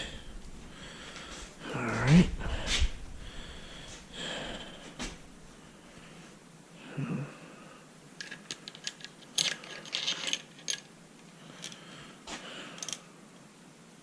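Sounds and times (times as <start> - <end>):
saw chain rattling and clicking: 8.2 - 10.9.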